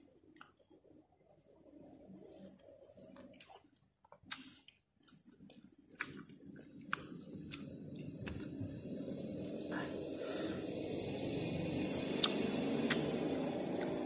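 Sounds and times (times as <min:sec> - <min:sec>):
wet chewing of fruit: 0:00.0 - 0:09.6, 0:12.0 - 0:14.0
lip smacks and mouth clicks: 0:02.2 - 0:08.6, 0:12.2 - 0:13.1
low steady rumble: 0:05.2 - 0:14.0.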